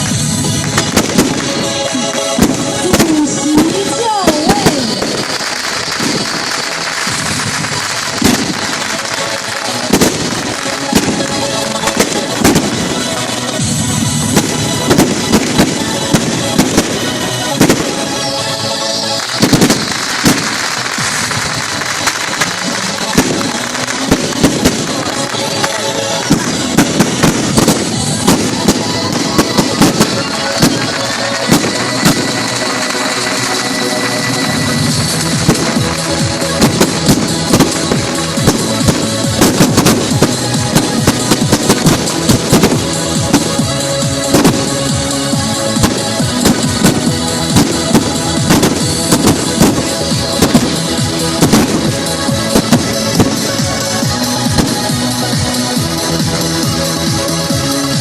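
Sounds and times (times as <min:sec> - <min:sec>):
fireworks banging and popping: 0:00.0 - 0:58.0.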